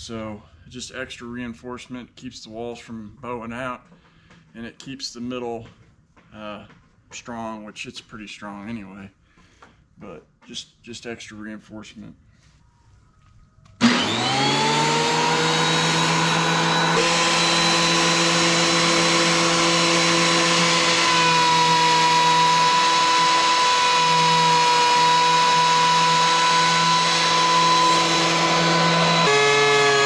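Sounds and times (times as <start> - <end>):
electric planer whining: 13.8 - 30.0.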